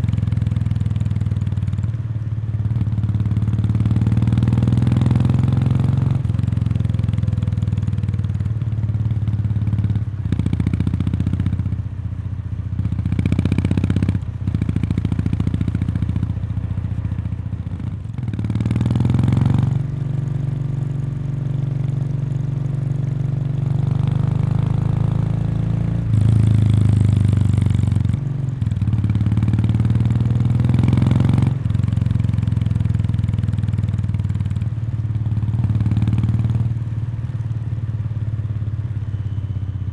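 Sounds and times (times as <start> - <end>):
motorcycle engine exhaust: 0.0 - 39.9.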